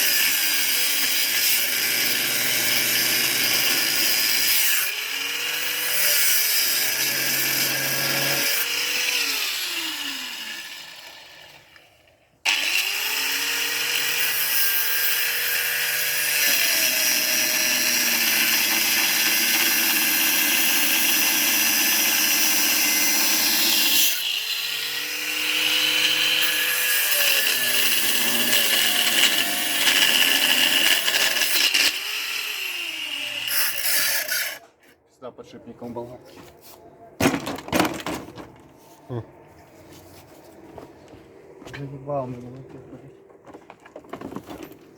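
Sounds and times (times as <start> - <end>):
angle grinder whining: 0.0 - 11.9, 12.5 - 34.8.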